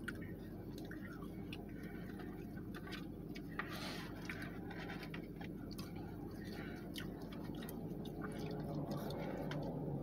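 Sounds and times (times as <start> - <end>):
chewing and handling food: 0.0 - 10.0
steady low hum: 0.0 - 10.0.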